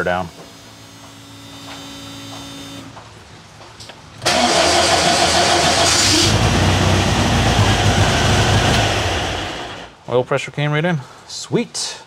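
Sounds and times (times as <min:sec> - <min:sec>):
car engine running: 0:04.2 - 0:09.9
engine cranking on starter: 0:04.2 - 0:09.9.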